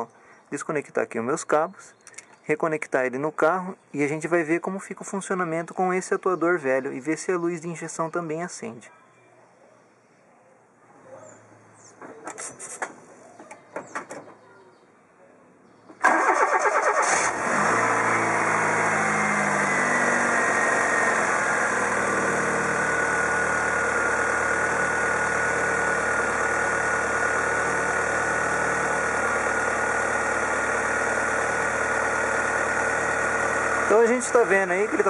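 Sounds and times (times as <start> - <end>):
car engine cranking and starting: 16.0 - 35.0
car engine idling: 16.0 - 35.0.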